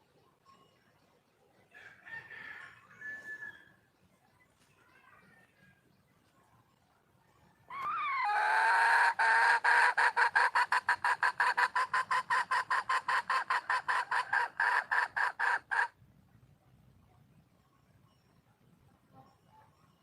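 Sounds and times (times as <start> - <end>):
hen calling and clucking: 7.5 - 16.0.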